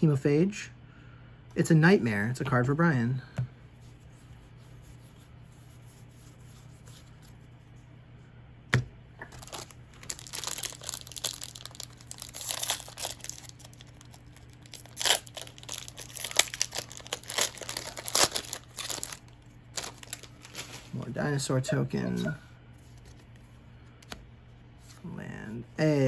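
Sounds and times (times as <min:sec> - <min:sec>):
foil wrapper crinkling and tearing: 0:09.2 - 0:21.0.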